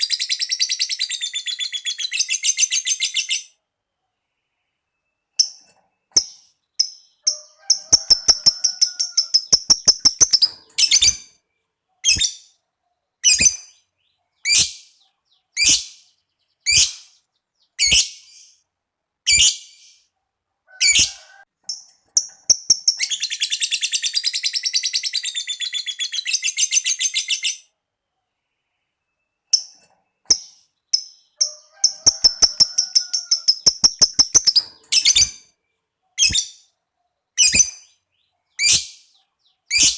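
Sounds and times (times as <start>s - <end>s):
lovebird sharp chirps: 5.0s - 11.4s, 12.0s - 12.6s, 13.2s - 15.0s, 15.6s - 18.6s, 19.3s - 20.1s, 21.7s - 27.7s, 29.2s - 35.5s, 36.2s - 36.7s, 37.4s - 38.0s, 38.6s - 39.9s
long chattering bird trill: 5.4s - 11.3s, 29.6s - 35.4s
fast ticking bird notes: 6.2s - 11.3s, 21.7s - 25.9s, 29.6s - 35.4s.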